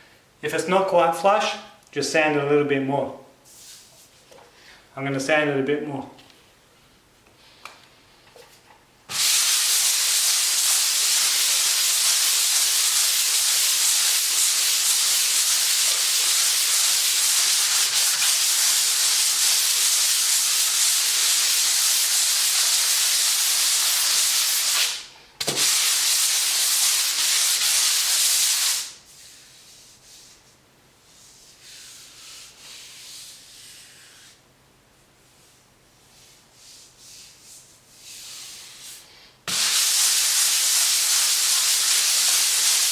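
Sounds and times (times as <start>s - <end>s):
sandpaper scraping on wall: 9.1s - 34.4s, 35.2s - 42.9s.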